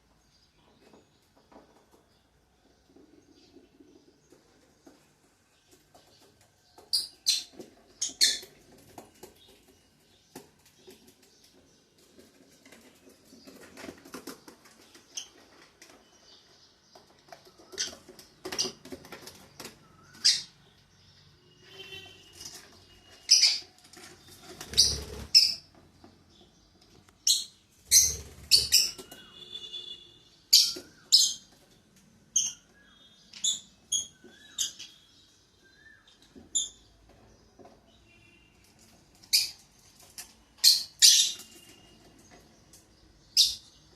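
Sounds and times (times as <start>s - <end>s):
lovebirds shrill chirping: 6.9s - 8.8s, 19.9s - 25.7s, 27.2s - 31.6s, 32.3s - 37.0s, 39.2s - 39.8s, 40.5s - 42.4s.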